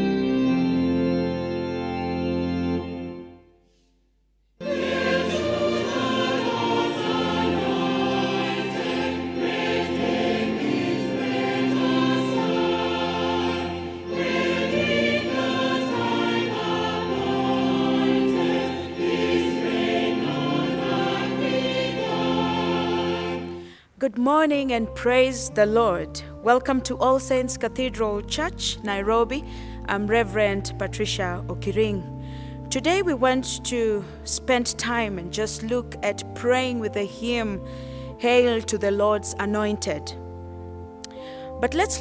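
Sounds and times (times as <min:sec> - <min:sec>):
sustained organ chord: 0:00.0 - 0:03.8, 0:04.6 - 0:23.8, 0:24.6 - 0:42.0
choir singing a hymn: 0:04.6 - 0:23.7.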